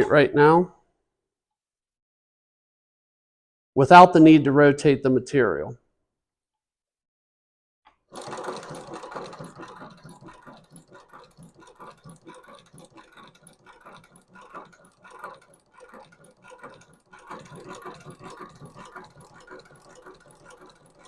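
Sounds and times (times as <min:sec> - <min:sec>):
sewing machine clattering: 0:07.9 - 0:21.0.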